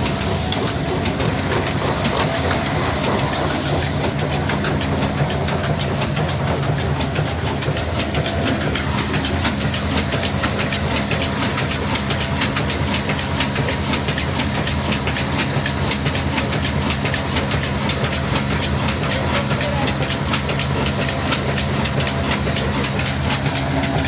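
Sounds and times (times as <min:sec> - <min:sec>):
diesel engine humming: 0:00.0 - 0:24.0
sharp engine ticking: 0:00.0 - 0:24.0.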